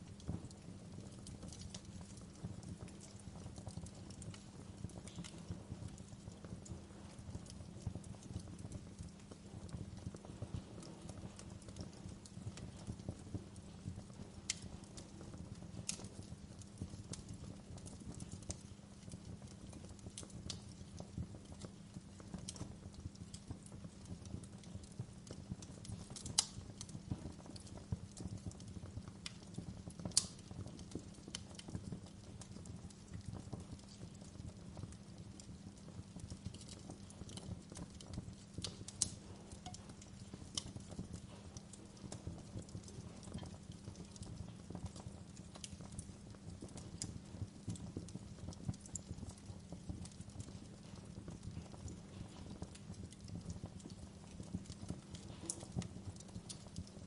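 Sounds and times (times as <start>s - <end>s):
wood fire crackling: 0.0s - 57.0s
sharp pops and snaps: 0.2s - 5.5s, 8.1s - 56.9s.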